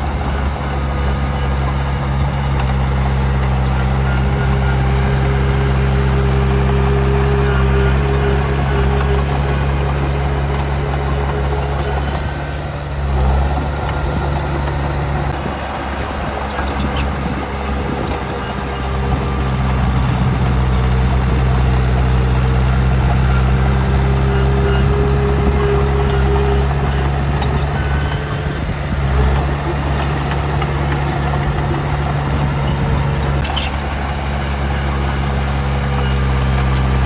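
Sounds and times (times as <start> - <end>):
heavy diesel engine running: 0.0 - 37.0.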